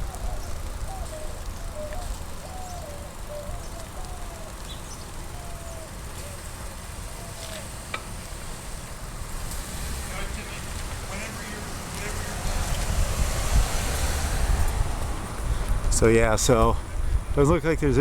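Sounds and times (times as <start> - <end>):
bicycle riding rumble: 0.0 - 18.0
wind buffeting microphone: 10.6 - 18.0.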